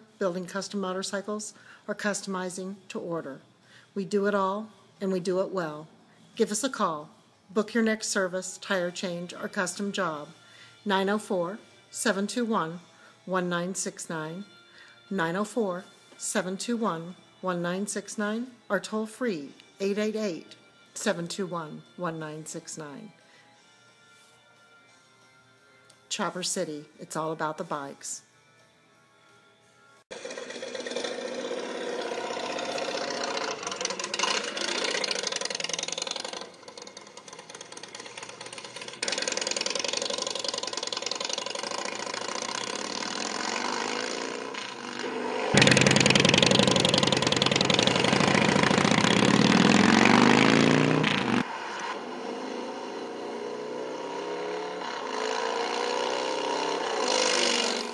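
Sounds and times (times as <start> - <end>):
motorcycle engines revving: 30.1 - 57.9.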